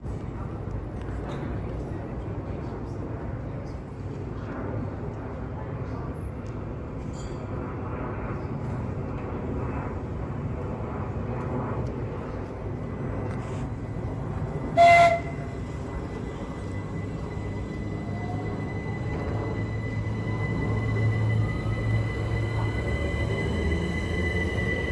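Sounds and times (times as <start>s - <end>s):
train rumbling: 0.1s - 24.9s
train horn blast: 14.6s - 15.9s.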